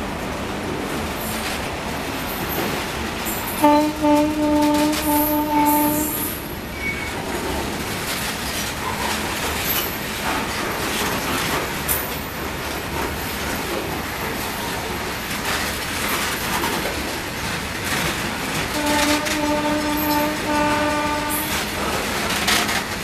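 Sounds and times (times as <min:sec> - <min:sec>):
wheels clattering on rails: 0:00.5 - 0:23.0
train horn chord: 0:03.6 - 0:06.4, 0:18.7 - 0:21.7.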